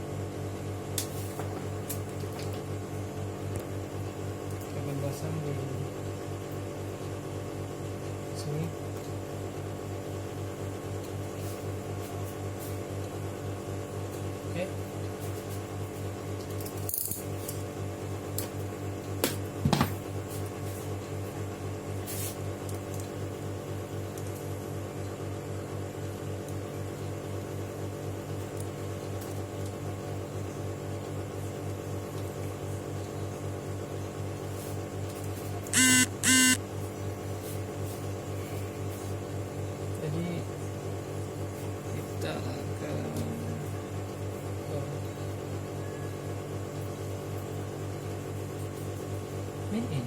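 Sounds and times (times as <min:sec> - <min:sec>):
electrical hum: 0:35.6 - 0:36.6
short electronic beeps: 0:35.8 - 0:36.6.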